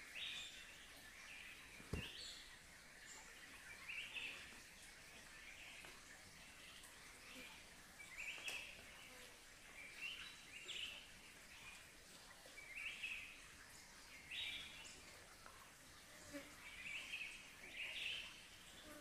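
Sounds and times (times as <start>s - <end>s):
faint background hiss: 0.0s - 19.0s.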